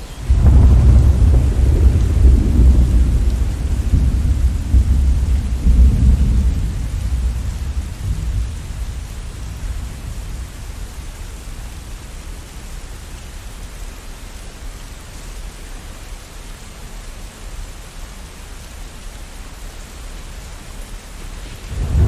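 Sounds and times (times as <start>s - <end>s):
steady rain: 0.0s - 22.0s
thunder rumbling: 0.2s - 11.0s, 21.4s - 22.0s.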